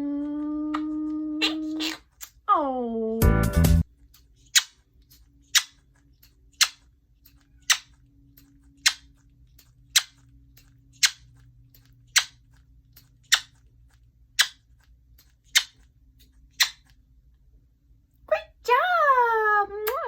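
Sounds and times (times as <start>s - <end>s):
parrot making kiss sounds: 0.3s - 2.4s, 4.1s - 13.6s, 14.4s - 17.0s.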